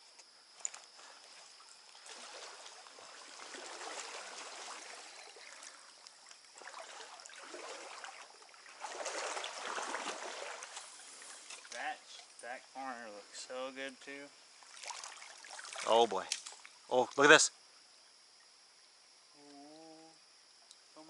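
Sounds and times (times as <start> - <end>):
stream water rushing and splashing: 1.0 - 12.4, 14.6 - 16.8.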